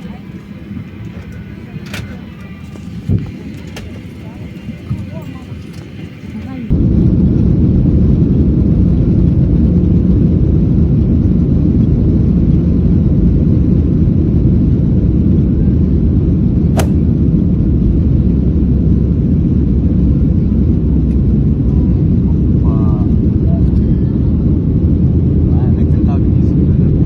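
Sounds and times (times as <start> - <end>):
jet cabin engine rumble: 0.0 - 27.0
sharp click: 16.8 - 17.0.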